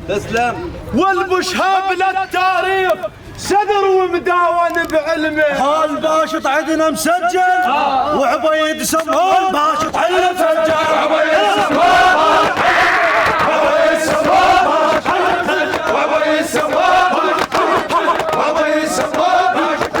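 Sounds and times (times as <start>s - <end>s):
men chanting together: 9.2s - 20.0s.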